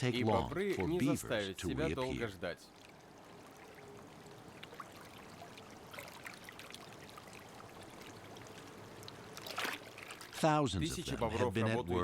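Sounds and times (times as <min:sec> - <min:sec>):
water trickling and lapping: 0:00.0 - 0:11.3
small splashes and drips: 0:02.6 - 0:10.5.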